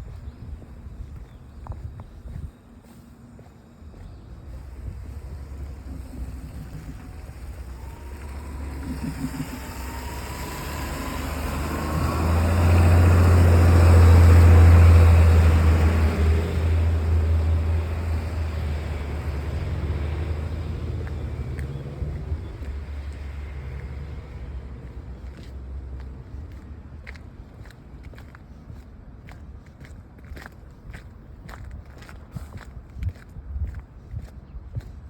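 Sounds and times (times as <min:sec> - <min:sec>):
vehicle passing by: 0:04.5 - 0:27.2.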